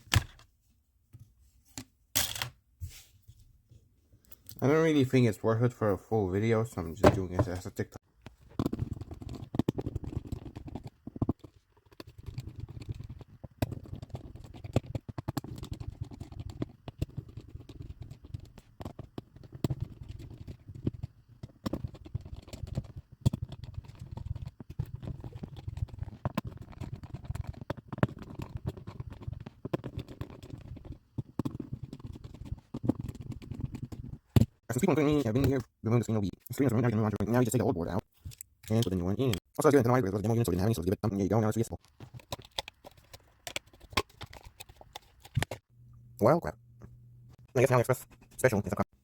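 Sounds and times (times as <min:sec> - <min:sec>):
tools and parts clicking and scraping: 0:01.7 - 0:02.6, 0:38.2 - 0:39.0, 0:41.8 - 0:45.6.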